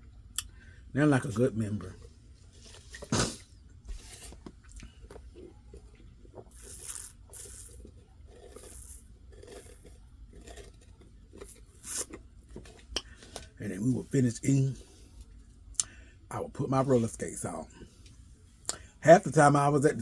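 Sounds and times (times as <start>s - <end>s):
soft crunching and rustling: 1.8s - 3.1s, 3.7s - 14.1s.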